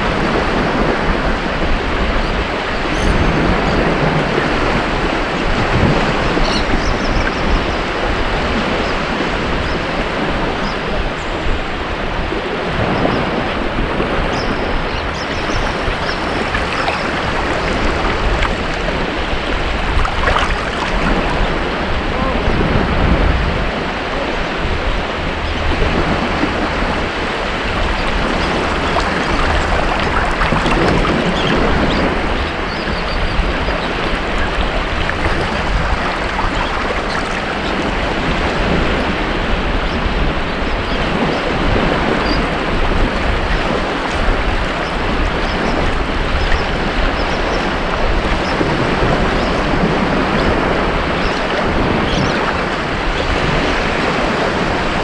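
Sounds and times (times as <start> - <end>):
ocean waves breaking on beach: 11.9 - 40.4, 48.4 - 55.0.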